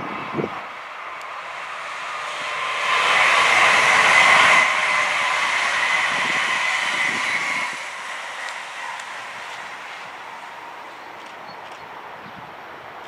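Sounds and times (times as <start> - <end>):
whine: 0.0 - 12.1
passenger train passing: 0.0 - 13.0.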